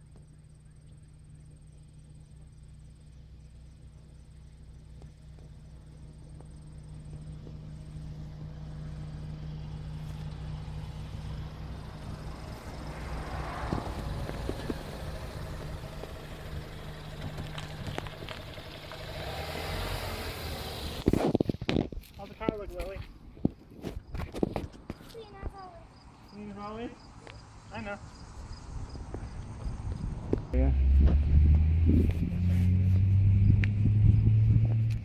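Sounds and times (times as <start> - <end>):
car engine idling: 0.0 - 23.3.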